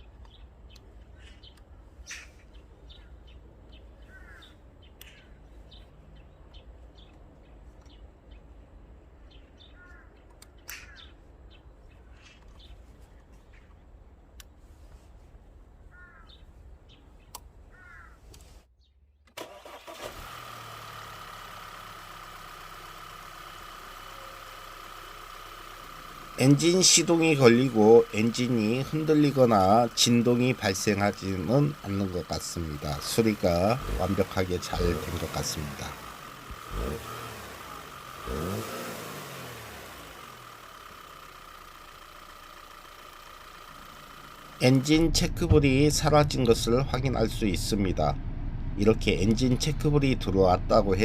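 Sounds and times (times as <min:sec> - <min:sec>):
faint bird chirps: 0:00.0 - 0:08.6, 0:24.0 - 0:24.6
car engine starting and idling: 0:19.2 - 0:51.0.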